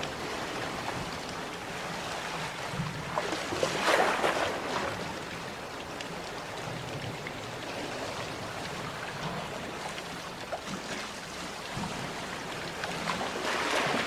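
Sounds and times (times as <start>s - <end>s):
steady wash of water: 0.0s - 14.0s.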